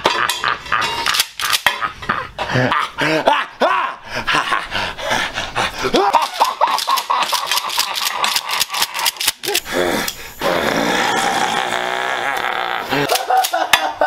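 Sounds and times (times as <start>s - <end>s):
wordless human cries and yells: 2.8s - 4.0s
rapid sharp clicks: 6.3s - 9.6s.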